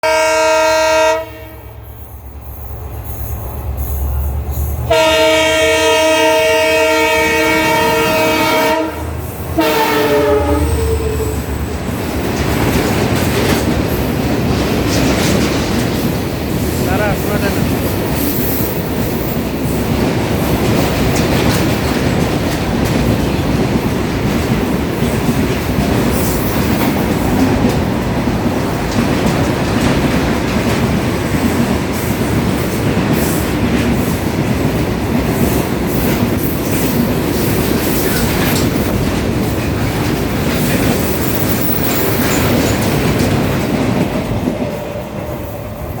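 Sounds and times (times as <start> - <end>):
train rumbling on rails: 0.0 - 46.0
wheels clicking over rail joints: 10.7 - 46.0.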